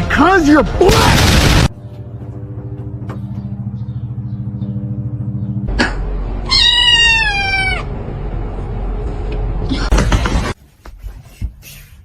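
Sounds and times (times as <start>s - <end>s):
cat meowing: 6.4s - 7.9s
low pulsing hum: 7.8s - 10.2s.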